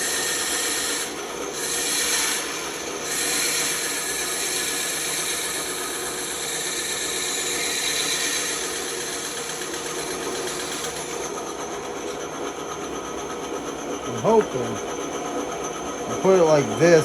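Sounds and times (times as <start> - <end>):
bandsaw cutting wood: 0.0 - 11.2, 14.1 - 14.9.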